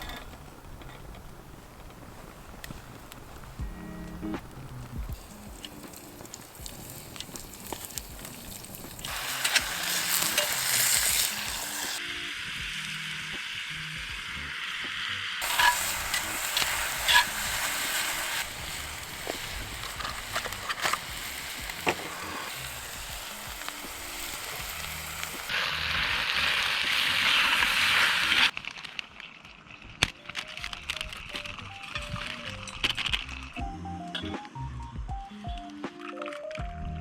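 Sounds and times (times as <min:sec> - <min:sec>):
food sizzling in a hot pan: 0:04.7 - 0:28.9.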